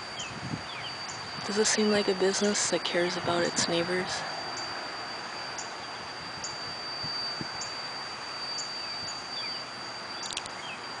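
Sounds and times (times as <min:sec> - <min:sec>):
high-pitched whine: 0:00.0 - 0:11.0
vacuum machine hissing rush: 0:00.0 - 0:11.0.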